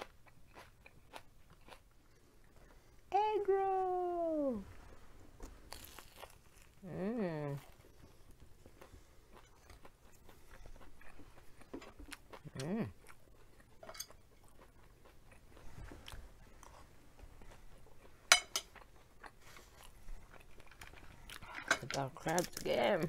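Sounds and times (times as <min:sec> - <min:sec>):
crunching crisp fried food: 0:00.0 - 0:02.8, 0:05.4 - 0:21.5
person humming mm: 0:06.8 - 0:07.7, 0:12.4 - 0:13.0.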